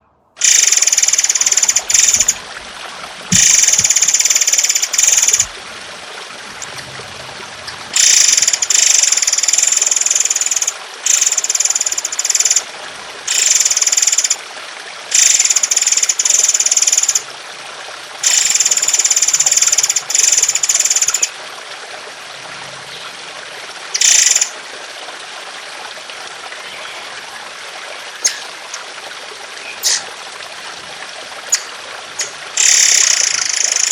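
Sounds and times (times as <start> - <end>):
trickling water: 0.0 - 33.9
songbird harsh song bursts: 29.6 - 30.8.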